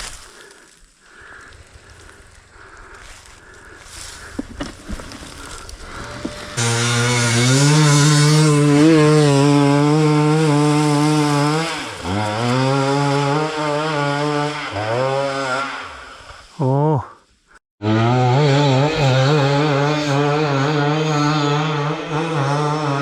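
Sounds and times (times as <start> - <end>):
dirt bike engine revving: 4.9 - 16.4, 17.8 - 23.0.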